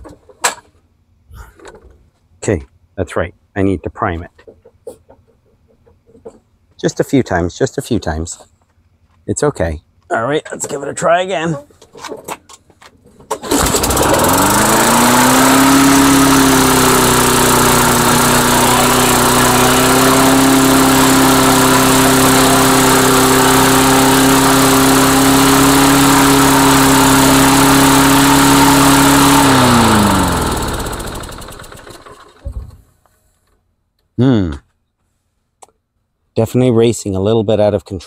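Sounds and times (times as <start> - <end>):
lawnmower engine racing: 13.3 - 32.7.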